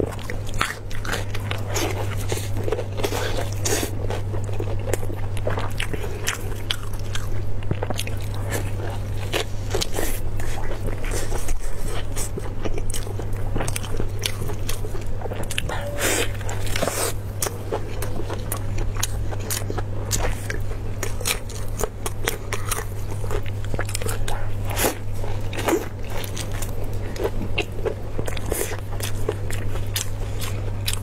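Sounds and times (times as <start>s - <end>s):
chewing meat: 0.0s - 31.0s.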